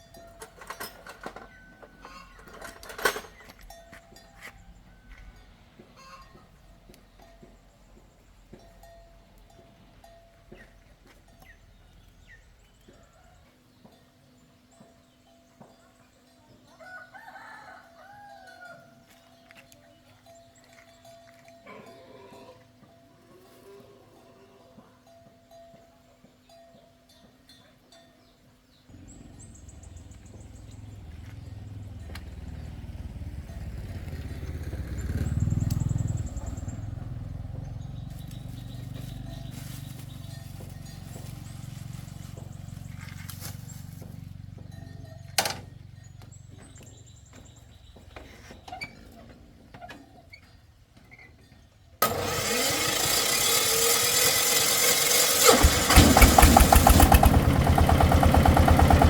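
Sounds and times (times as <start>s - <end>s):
engine starting and running: 0.1s - 3.8s, 28.9s - 44.4s, 52.0s - 59.0s.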